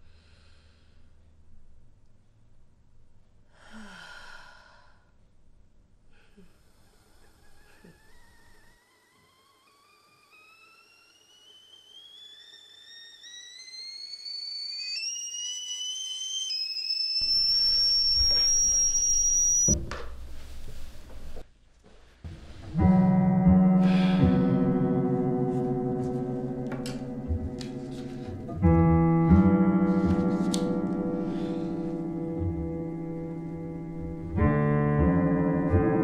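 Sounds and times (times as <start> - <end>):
high thin rising tone: 8.7 - 19.8
sustained piano chord: 22.8 - 36.0.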